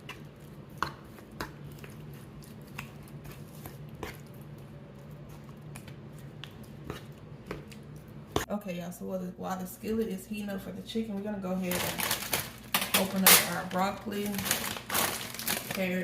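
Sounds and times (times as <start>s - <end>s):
soft squishy handling: 0.0s - 8.5s
steady low hum: 0.0s - 16.0s.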